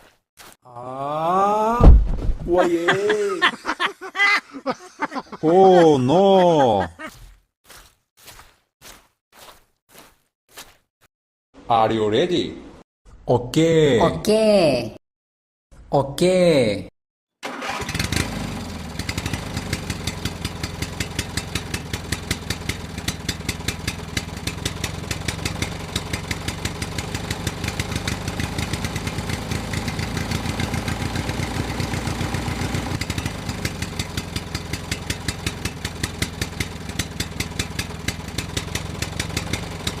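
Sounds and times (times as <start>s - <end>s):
small tractor engine putt-putt: 17.4s - 40.0s.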